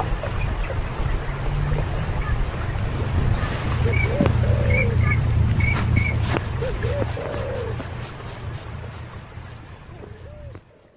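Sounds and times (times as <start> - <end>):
low hooting calls: 0.0 - 9.3
steady low rumble: 0.0 - 10.5
insect chirping: 0.0 - 10.9.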